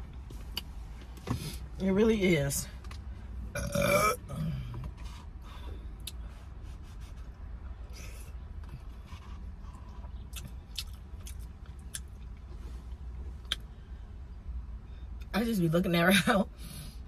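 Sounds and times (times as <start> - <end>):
steady low rumble: 0.0 - 17.0
person chewing noodles: 9.6 - 12.3.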